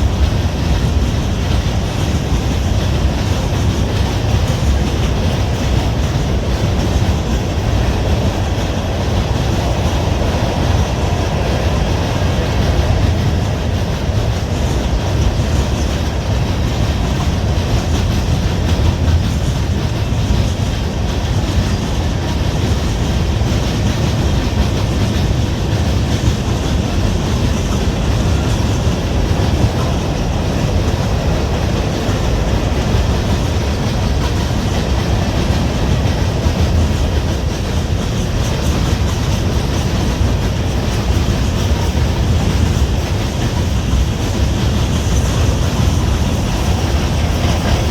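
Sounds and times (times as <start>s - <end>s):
train wheels rumbling on rails: 0.0s - 47.9s.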